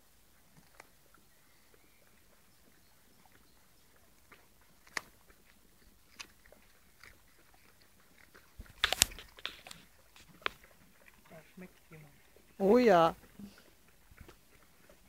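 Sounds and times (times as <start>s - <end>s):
dog crunching carrot: 3.9s - 12.3s.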